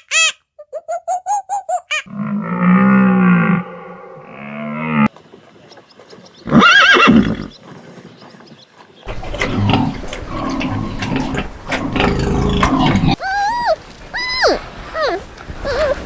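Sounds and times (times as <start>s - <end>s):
horse neighing: 6.5s - 7.5s, 9.1s - 16.0s
rustling noise: 12.6s - 16.0s.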